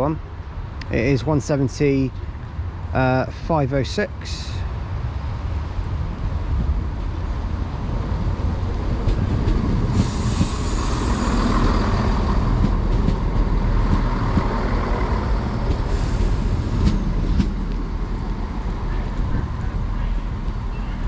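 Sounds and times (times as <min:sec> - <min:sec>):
diesel train and wheel rumble: 0:00.0 - 0:21.0
hiss: 0:09.9 - 0:11.6, 0:15.8 - 0:16.9.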